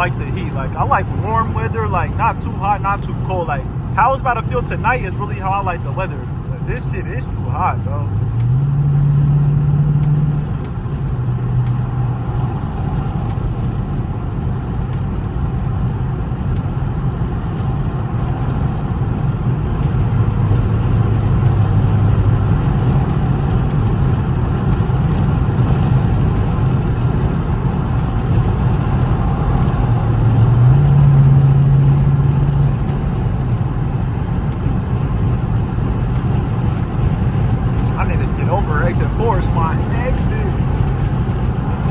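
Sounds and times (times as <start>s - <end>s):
car exhaust drone: 0.0s - 41.9s.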